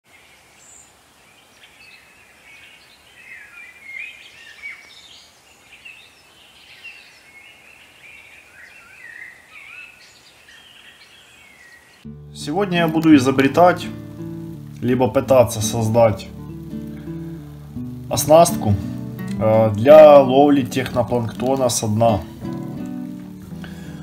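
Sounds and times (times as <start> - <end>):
small birds chirping and warbling: 0.1 - 12.1
faint steady hiss: 0.1 - 24.0.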